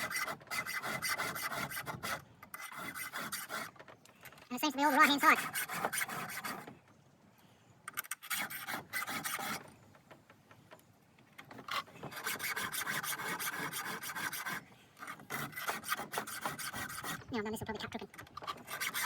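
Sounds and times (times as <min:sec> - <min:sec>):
hand file rasping on chain: 0:00.0 - 0:03.8, 0:04.8 - 0:06.7, 0:08.0 - 0:09.7, 0:11.6 - 0:19.0.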